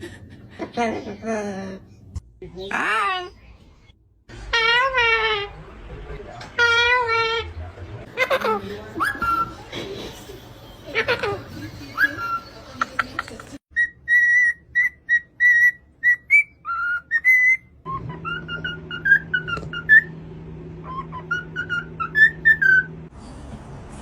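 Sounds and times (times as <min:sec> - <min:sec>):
bird whistling: 0:13.7 - 0:20.2, 0:20.8 - 0:23.0.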